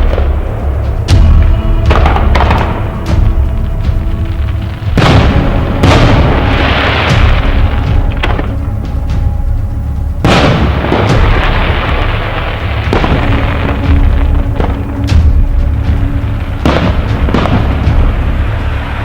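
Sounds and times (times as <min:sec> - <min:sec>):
fireworks crackling: 0:00.0 - 0:19.0
music: 0:00.0 - 0:19.0
firework shells booming: 0:10.2 - 0:15.0.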